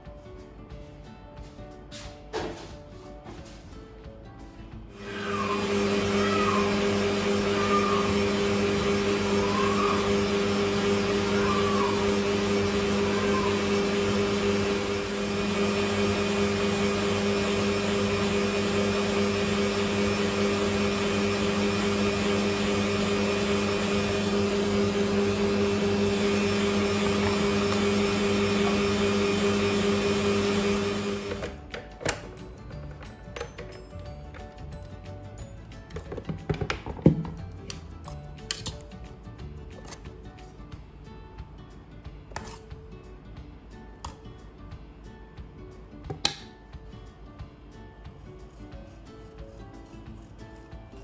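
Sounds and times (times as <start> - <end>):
kitchen appliance humming: 4.9 - 34.5.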